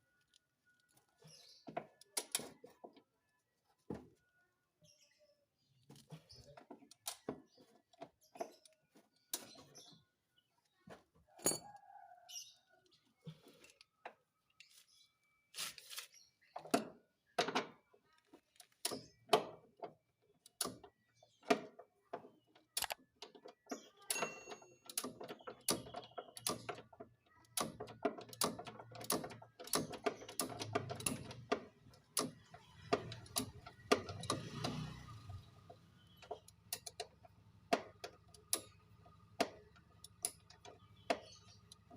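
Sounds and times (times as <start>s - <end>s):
hand tools clicking and knocking: 11.4s - 11.7s, 16.6s - 41.9s.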